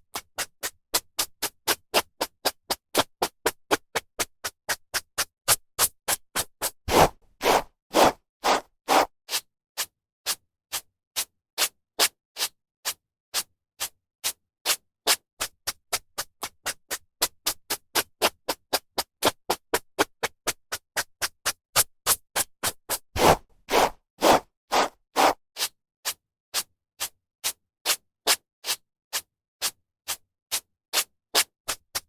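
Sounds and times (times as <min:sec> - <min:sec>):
hairbrush swishing through hair: 0:06.9 - 0:09.1, 0:23.2 - 0:25.4.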